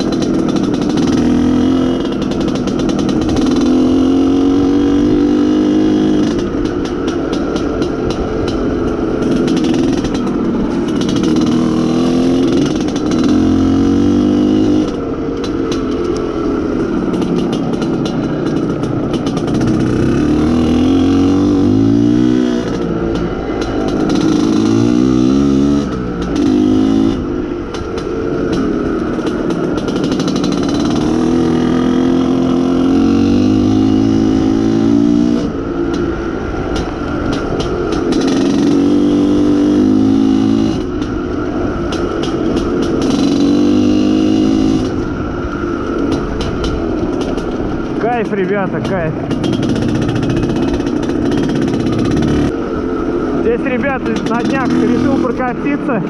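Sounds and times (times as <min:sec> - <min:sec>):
two-stroke motorcycle engine accelerating: 0:00.0 - 0:56.0.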